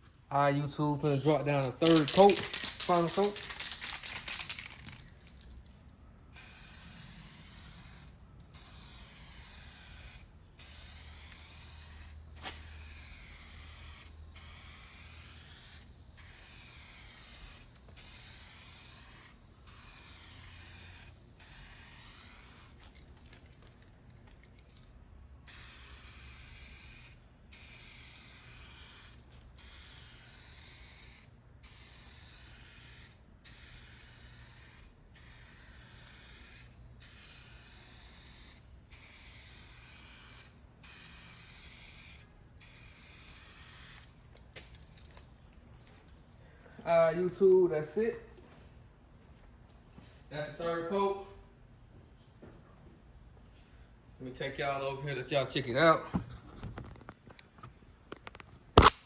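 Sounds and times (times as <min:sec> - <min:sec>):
spray gun hissing: 0:06.3 - 0:22.8, 0:25.5 - 0:44.1.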